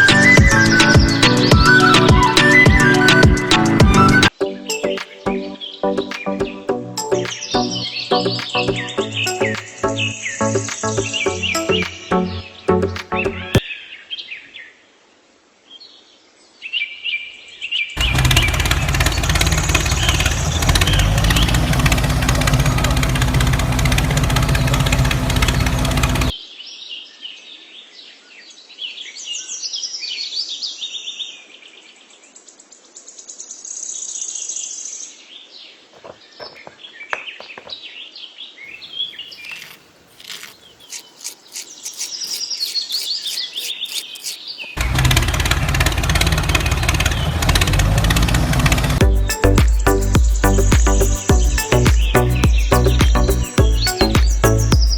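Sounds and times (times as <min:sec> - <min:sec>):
birds chirping: 0:00.0 - 0:13.7, 0:35.7 - 0:45.0, 0:48.9 - 0:54.9
loud machine noise: 0:18.0 - 0:26.3.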